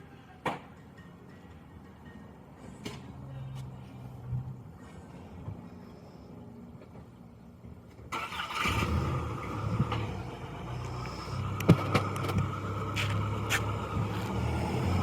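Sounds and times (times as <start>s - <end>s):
truck driving nearer: 8.6s - 15.0s.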